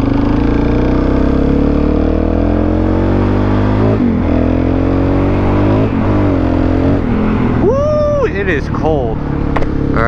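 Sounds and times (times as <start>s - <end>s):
motorcycle engine under load: 0.0s - 7.6s.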